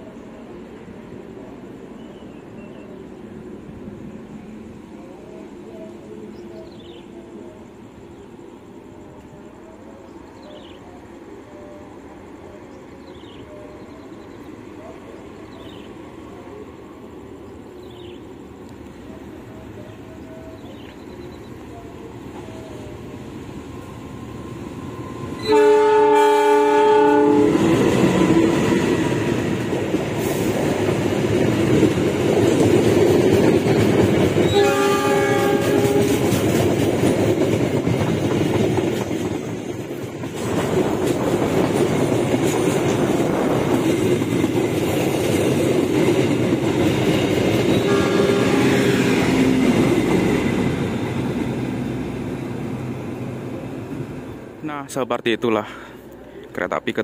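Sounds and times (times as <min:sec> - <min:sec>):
passenger train passing: 0:00.0 - 0:57.0
train wheels going by: 0:00.0 - 0:57.0
locomotive horn chord: 0:25.4 - 0:27.6, 0:34.5 - 0:36.2, 0:47.8 - 0:49.2.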